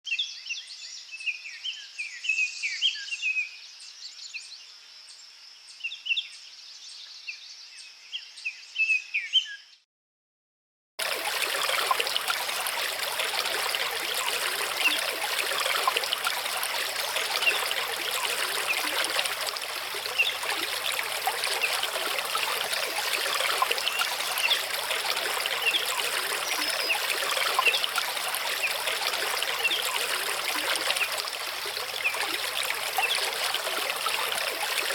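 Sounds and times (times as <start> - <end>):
small birds chirping: 11.0 - 34.9
stream running over rocks: 11.0 - 34.9.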